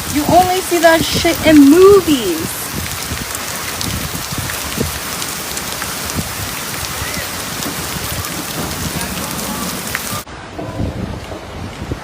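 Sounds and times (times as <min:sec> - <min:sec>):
heavy rain on hard surfaces: 0:00.0 - 0:12.0.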